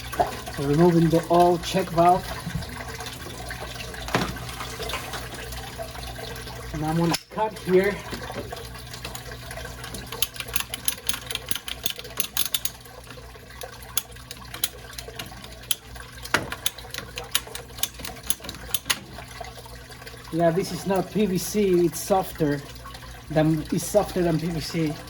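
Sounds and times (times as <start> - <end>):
clicks and scraping of cutting pipe: 9.9 - 12.8, 13.6 - 19.2.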